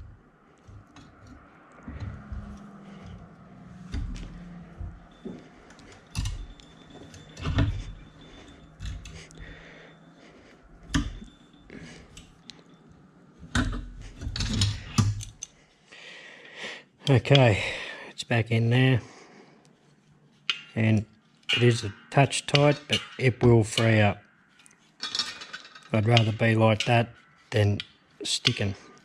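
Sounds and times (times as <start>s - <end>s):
sharp metal knocks: 20.5s - 20.9s, 21.5s - 24.0s.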